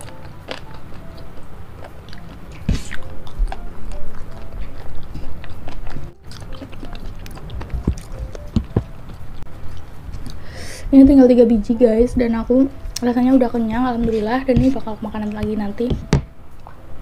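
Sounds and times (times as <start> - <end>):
person chewing with wet mouth sounds: 0.0 - 10.4.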